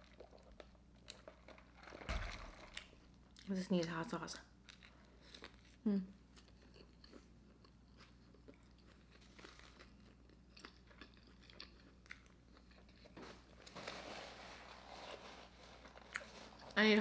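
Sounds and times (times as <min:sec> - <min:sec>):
soft chewing: 0:00.0 - 0:02.1, 0:04.5 - 0:13.8, 0:14.8 - 0:16.9.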